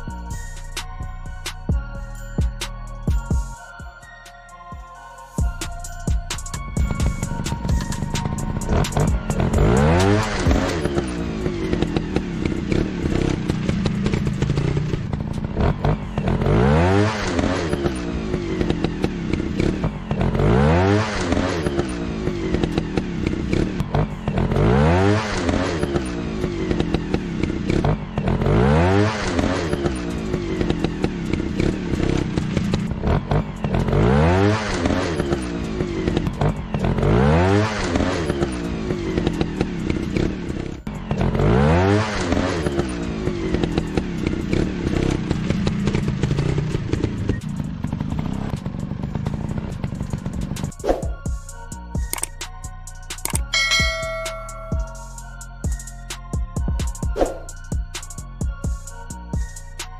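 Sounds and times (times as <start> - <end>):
dirt bike engine revving: 6.8 - 51.3.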